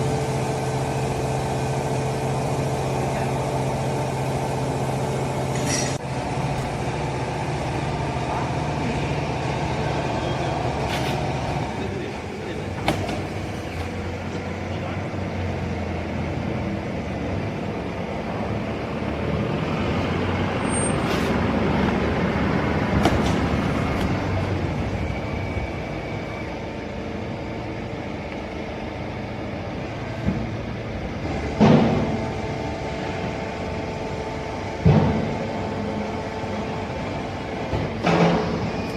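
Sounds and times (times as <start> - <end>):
sharp metallic clanks: 5.5 - 6.0.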